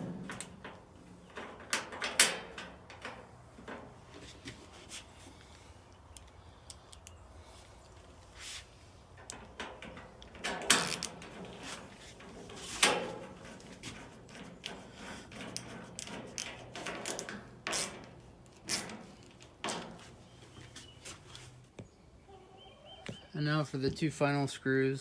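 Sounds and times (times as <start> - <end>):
sheet-metal panels knocking: 0.0 - 4.0
soft rattles and clicks: 9.2 - 20.8.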